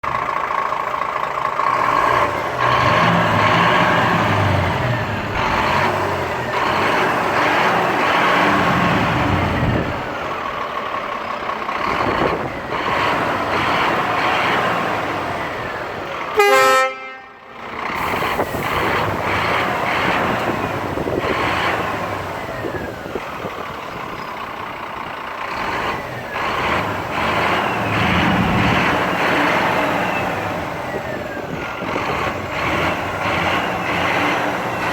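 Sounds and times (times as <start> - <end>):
truck engine running: 0.0 - 34.9
truck horn blast: 16.3 - 17.6.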